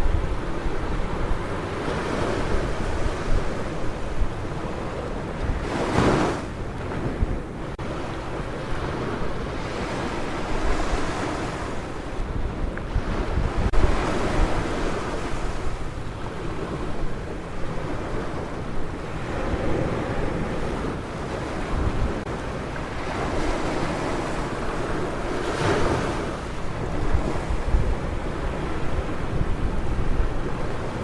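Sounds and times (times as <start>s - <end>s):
waves breaking on beach: 0.0s - 31.0s
wind on microphone: 0.0s - 31.0s.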